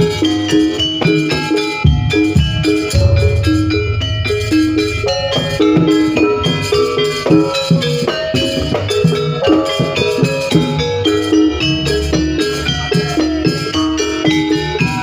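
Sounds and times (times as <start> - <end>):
drums: 0.0 - 15.0
metallic percussion quick notes: 1.9 - 8.2
heavily boosted bass: 2.4 - 7.0.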